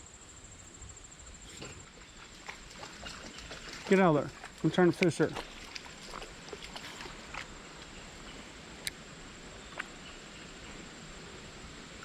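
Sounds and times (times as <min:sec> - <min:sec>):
creek water running: 0:01.3 - 0:12.0.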